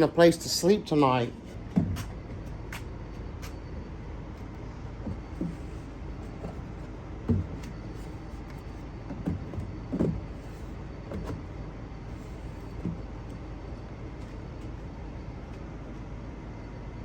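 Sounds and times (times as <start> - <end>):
low hum: 0.0 - 17.0
wooden knocks and thumps: 1.5 - 2.9, 5.0 - 11.5, 12.6 - 13.4.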